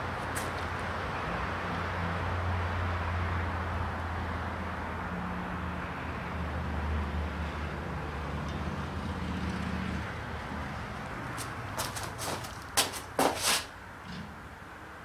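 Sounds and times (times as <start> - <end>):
broad rushing noise: 11.2 - 13.8.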